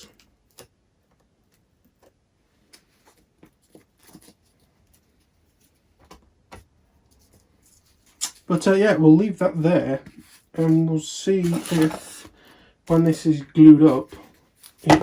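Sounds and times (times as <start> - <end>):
faint clicks and taps: 0.0 - 8.5.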